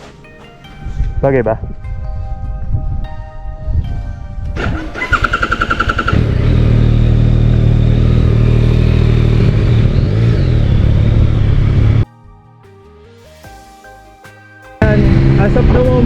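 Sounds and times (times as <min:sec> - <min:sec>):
starter motor cranking: 0:04.6 - 0:06.6.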